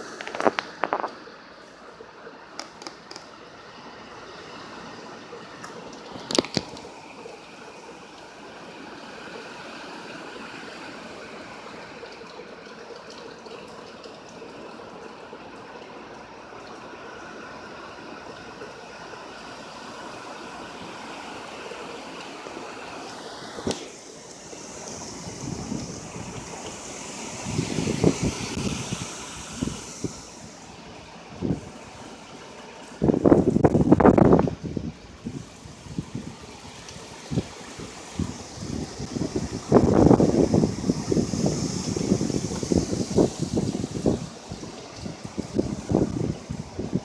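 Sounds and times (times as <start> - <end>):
heavy rain and running water: 0.0 - 47.0
wind gusts buffeting microphone: 24.8 - 32.0, 32.8 - 47.0.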